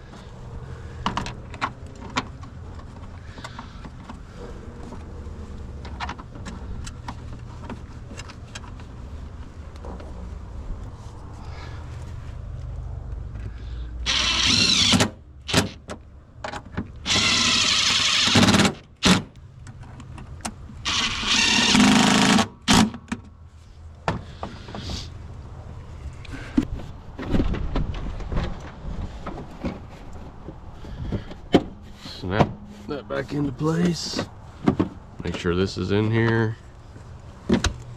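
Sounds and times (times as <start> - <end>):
power drill running: 14.0 - 15.8, 17.0 - 19.2, 20.8 - 22.4.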